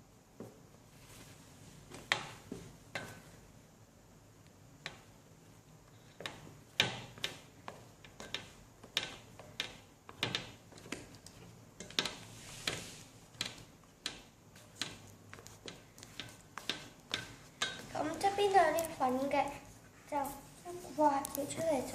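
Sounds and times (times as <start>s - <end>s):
utensil stirring batter in bowl: 4.7s - 21.9s.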